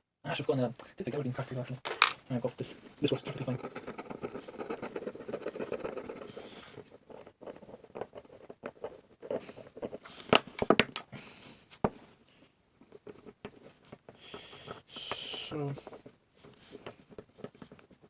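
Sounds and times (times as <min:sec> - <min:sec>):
rapid scrubbing strokes: 0:03.1 - 0:10.0.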